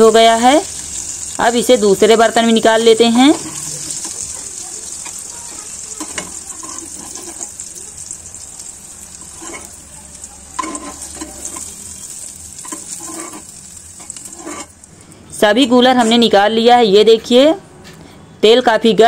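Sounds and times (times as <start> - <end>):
oil sizzling in a pan: 0.0 - 15.2
spoon scraping and knocking pan: 3.3 - 7.7, 9.2 - 9.8, 10.6 - 14.8.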